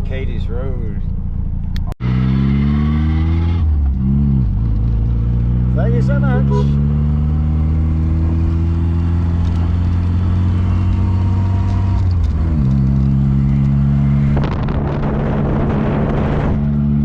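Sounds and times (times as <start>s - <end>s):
car engine cruising: 0.0s - 17.0s
road noise: 0.0s - 17.0s
rush of noise: 14.2s - 17.0s.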